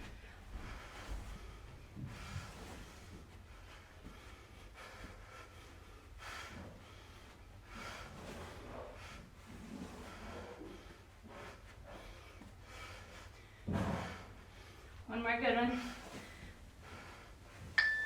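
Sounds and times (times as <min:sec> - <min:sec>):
person breathing hard: 0:00.0 - 0:09.3, 0:10.0 - 0:15.0
low steady hum: 0:17.8 - 0:18.0.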